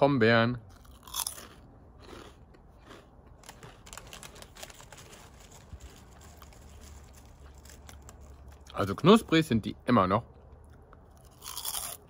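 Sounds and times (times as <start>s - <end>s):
crunchy snack being chewed: 0.7s - 9.0s, 10.6s - 12.0s.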